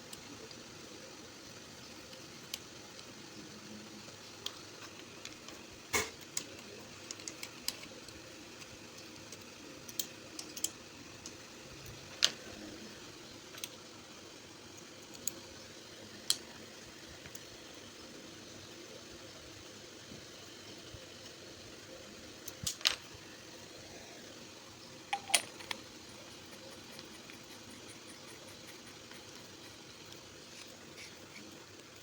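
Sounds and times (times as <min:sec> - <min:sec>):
small hard parts clicking: 0:04.4 - 0:12.6, 0:22.4 - 0:23.1, 0:25.0 - 0:32.0.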